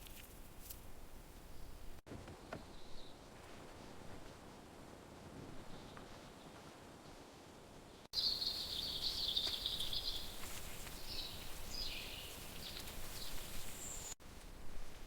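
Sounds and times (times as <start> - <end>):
birds trilling and chirping: 8.2 - 14.2.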